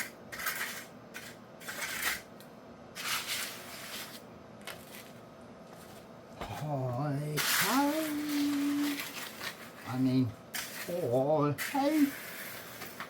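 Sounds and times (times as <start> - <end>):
tool scraping wet concrete: 0.0 - 2.3, 7.4 - 9.1, 10.6 - 13.0.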